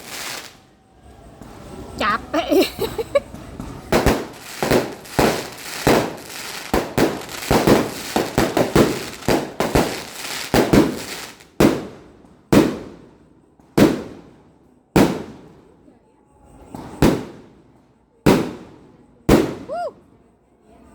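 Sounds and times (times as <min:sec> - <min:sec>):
fireworks bangs: 0:00.0 - 0:00.6, 0:01.4 - 0:15.9, 0:16.7 - 0:19.9.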